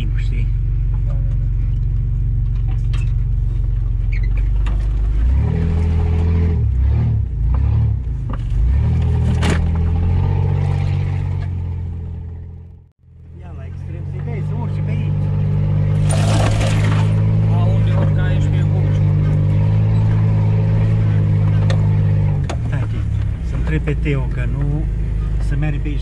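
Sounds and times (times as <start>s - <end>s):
off-road vehicle engine revving: 0.0s - 26.0s.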